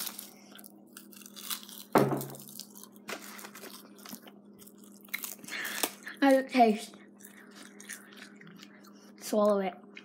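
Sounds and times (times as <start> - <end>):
person chewing: 0.0 - 6.2, 6.9 - 10.0.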